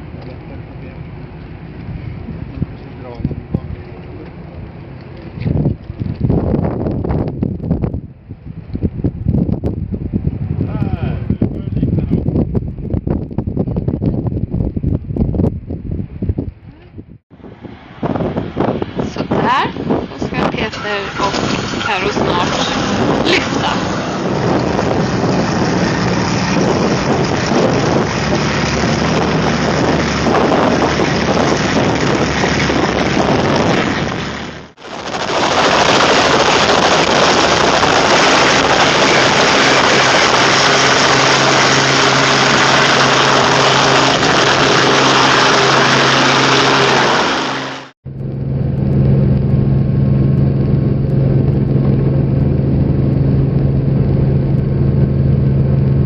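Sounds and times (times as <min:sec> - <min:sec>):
low hum: 0:00.0 - 0:56.0
helicopter engine and rotor: 0:17.3 - 0:56.0.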